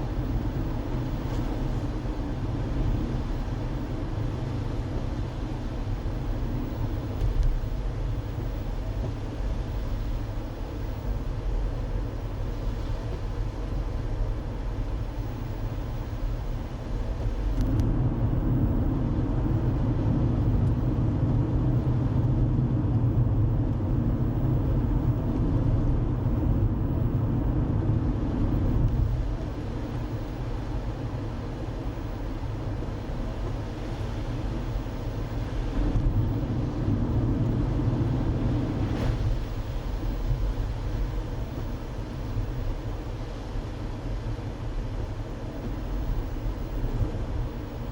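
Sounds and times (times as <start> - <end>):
car engine and tyres rumbling: 0.0 - 47.9.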